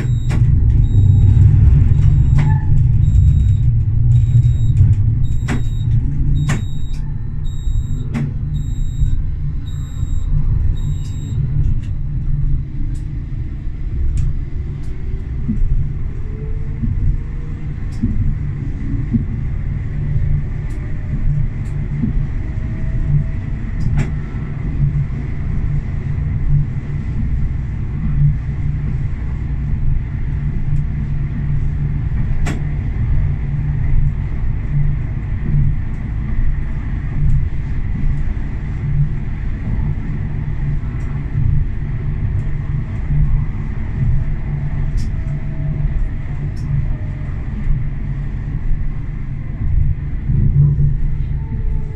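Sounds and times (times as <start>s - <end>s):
faint rising whine: 0.0s - 19.0s
tram rumbling: 0.0s - 51.9s
sharp clicks: 1.9s - 9.0s.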